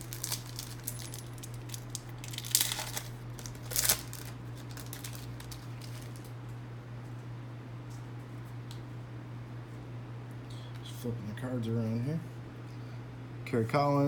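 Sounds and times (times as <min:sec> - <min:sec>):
wrapper crinkling and tearing: 0:00.0 - 0:06.3
steady low hum: 0:00.0 - 0:14.0.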